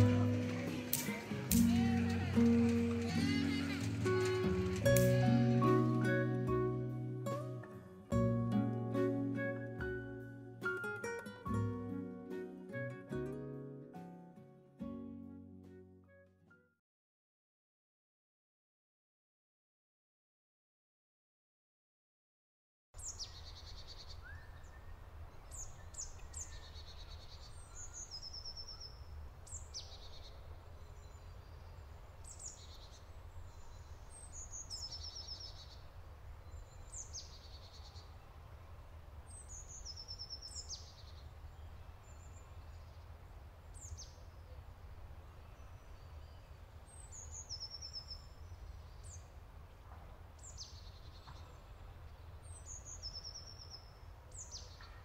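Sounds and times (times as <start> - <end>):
birds singing: 23.0 - 38.2, 39.3 - 44.7, 45.3 - 49.4, 50.3 - 55.0.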